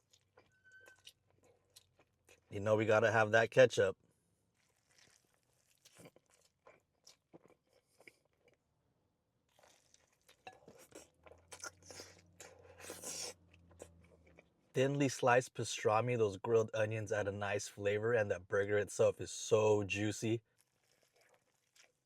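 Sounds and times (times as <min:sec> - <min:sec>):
person chewing a burger: 0:00.0 - 0:02.5, 0:04.5 - 0:08.7, 0:09.5 - 0:14.6, 0:20.6 - 0:22.0.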